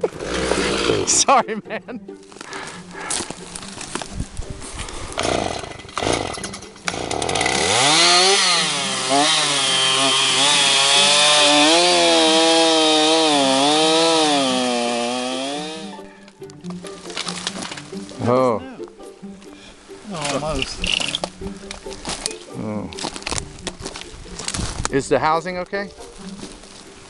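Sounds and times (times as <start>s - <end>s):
chainsaw engine revving: 0.0s - 1.2s, 5.1s - 15.9s.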